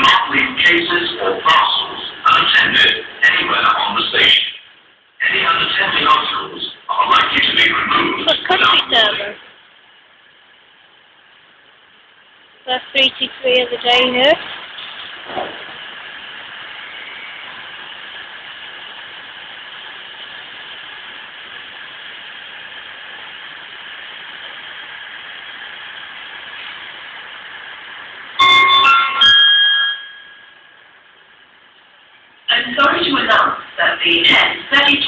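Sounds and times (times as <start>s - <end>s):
diesel train passing: 0.0s - 9.6s, 12.7s - 35.0s
trains moving through station: 0.0s - 35.0s
electronic chime: 28.4s - 30.6s.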